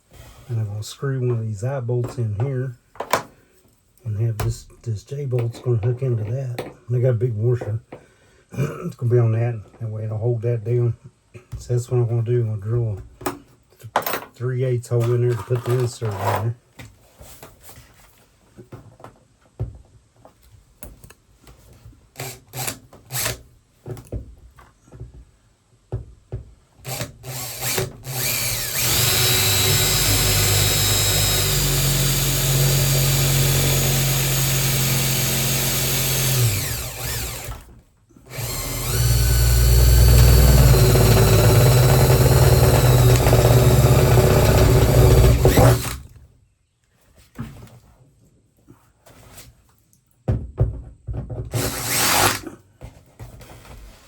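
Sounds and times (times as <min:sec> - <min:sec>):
electric drill boring: 0:26.9 - 0:37.6, 0:38.3 - 0:46.0, 0:51.5 - 0:52.4.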